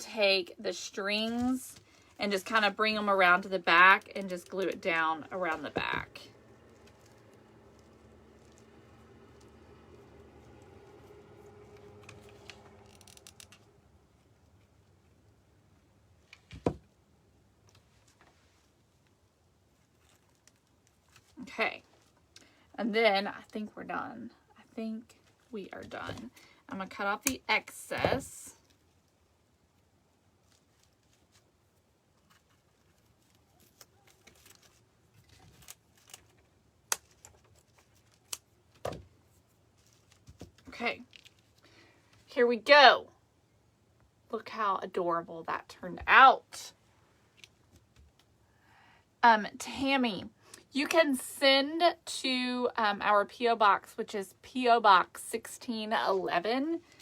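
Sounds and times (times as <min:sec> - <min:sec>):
small clicks and rustles: 0:06.3 - 0:15.4, 0:17.6 - 0:22.7, 0:28.4 - 0:42.3, 0:47.2 - 0:48.4.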